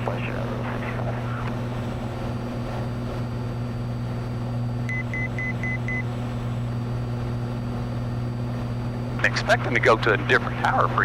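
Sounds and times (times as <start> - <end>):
propeller plane engine droning: 0.0 - 11.0
high electronic beeps: 4.9 - 6.0.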